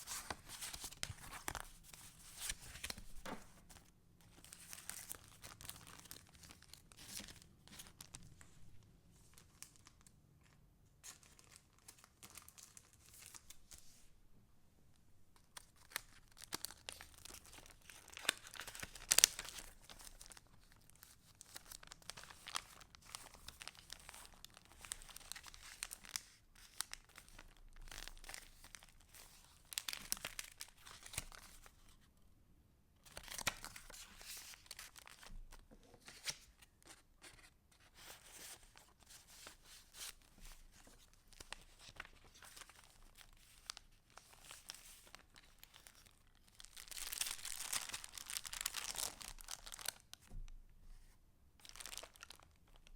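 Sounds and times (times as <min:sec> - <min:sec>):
sharp paper crackle: 0:00.0 - 0:08.3, 0:15.6 - 0:31.7, 0:36.0 - 0:50.2
paper rustling and crinkling: 0:00.0 - 0:14.0, 0:15.5 - 0:32.0, 0:33.0 - 0:50.5, 0:51.6 - 0:52.9.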